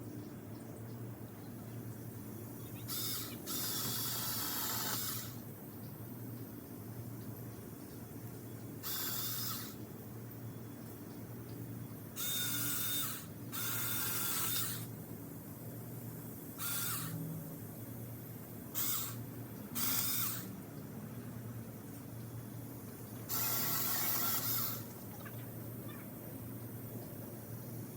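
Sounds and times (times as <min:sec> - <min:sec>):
electric chainsaw cutting branches: 0:03.0 - 0:05.4, 0:08.8 - 0:09.8, 0:12.2 - 0:14.9, 0:16.6 - 0:17.2, 0:19.8 - 0:20.6, 0:23.3 - 0:25.0.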